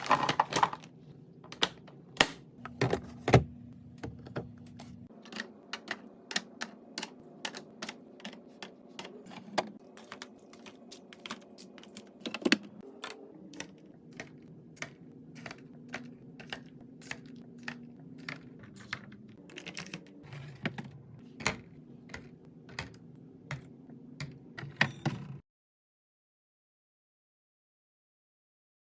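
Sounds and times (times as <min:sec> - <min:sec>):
containers clicking and tapping: 0:05.2 - 0:24.7.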